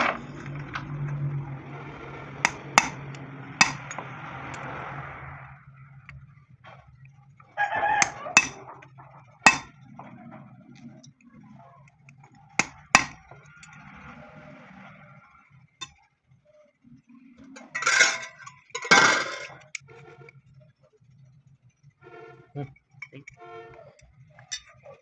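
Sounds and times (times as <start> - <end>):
metal tools clinking and knocking: 2.5 - 4.0, 8.0 - 8.6, 9.5 - 9.8, 12.6 - 13.8, 17.6 - 19.8
sharp strikes: 2.5 - 4.0, 8.0 - 8.6, 9.5 - 9.7, 12.6 - 13.2.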